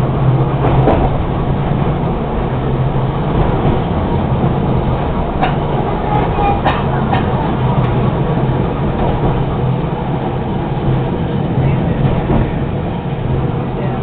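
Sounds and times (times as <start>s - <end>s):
tram rumbling: 0.0s - 14.0s.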